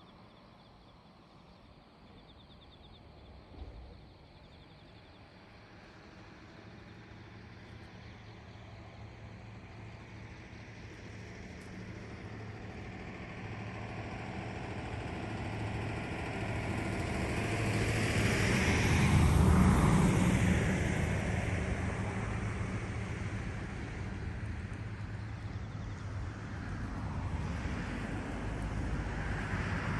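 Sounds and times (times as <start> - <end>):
motor vehicle passing by: 9.4 - 29.9.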